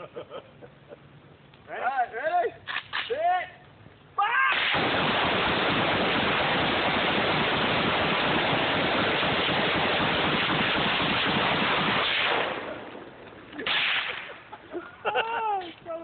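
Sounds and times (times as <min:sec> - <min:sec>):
rapid gunfire: 0:04.6 - 0:12.8.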